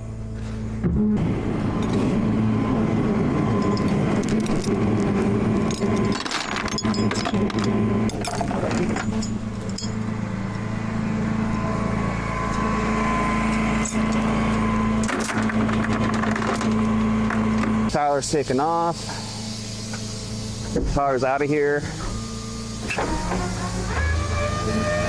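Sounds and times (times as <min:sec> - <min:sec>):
truck engine running: 0:00.0 - 0:25.0
metallic clicking and rattling: 0:03.6 - 0:10.3.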